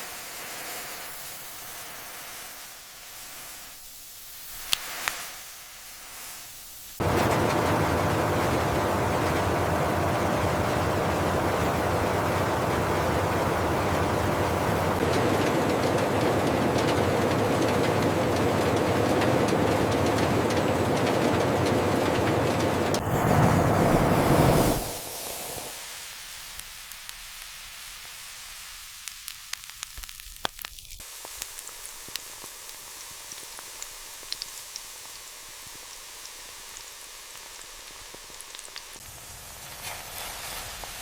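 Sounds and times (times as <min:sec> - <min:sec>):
steady rushing noise: 0:07.0 - 0:25.8.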